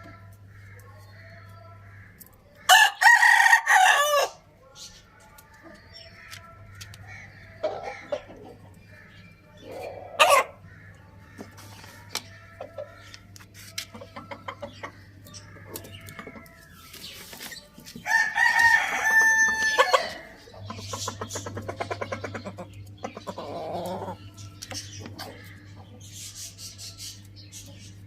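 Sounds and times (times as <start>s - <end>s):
chickens clucking: 0.0s - 28.0s
rooster crowing: 2.7s - 4.4s, 18.0s - 20.4s.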